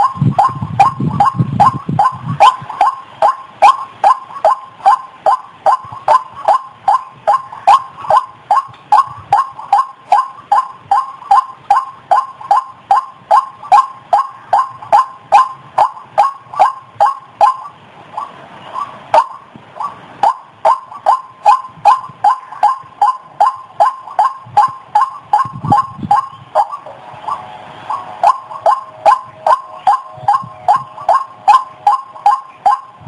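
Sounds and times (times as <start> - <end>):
bird calling harsh notes: 0.0 - 33.0.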